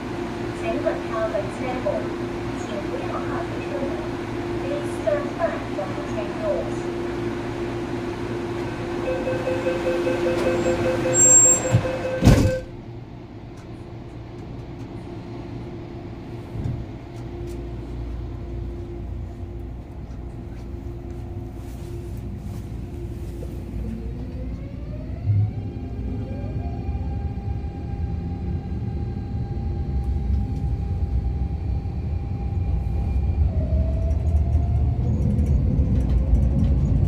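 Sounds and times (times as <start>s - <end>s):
train cabin humming: 0.0s - 37.0s
door-closing warning tone: 9.0s - 12.8s
sliding doors shutting with a thud: 10.2s - 12.7s.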